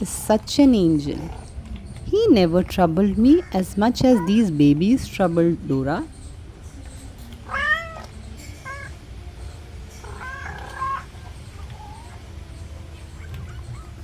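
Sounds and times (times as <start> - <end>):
kittens mewing: 2.4 - 5.4, 7.3 - 9.1, 9.9 - 14.0.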